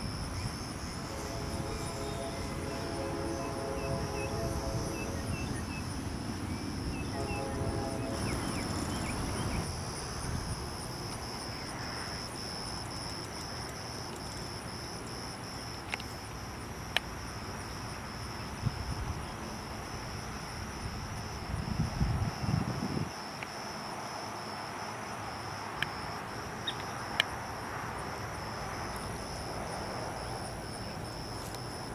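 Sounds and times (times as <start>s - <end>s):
wind rumble on microphone: 0.0s - 12.0s, 18.5s - 19.5s, 20.2s - 23.2s
insects trilling: 0.0s - 31.9s.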